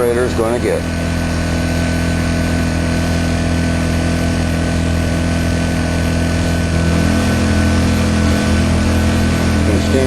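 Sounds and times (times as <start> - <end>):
generator engine running: 0.0 - 10.0.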